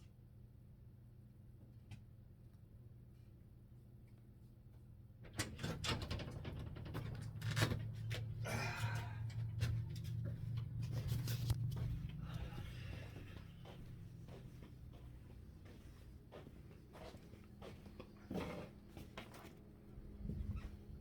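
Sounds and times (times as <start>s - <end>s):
steady low hum: 7.4s - 21.0s.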